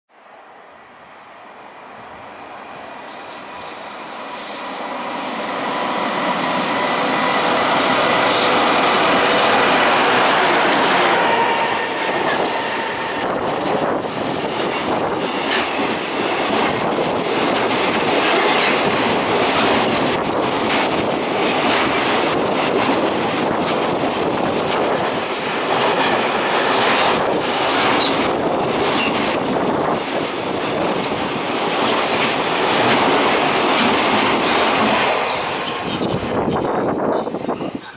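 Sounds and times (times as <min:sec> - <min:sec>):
electric locomotive humming: 0:00.2 - 0:37.9
wheels clicking over rail joints: 0:14.0 - 0:36.9.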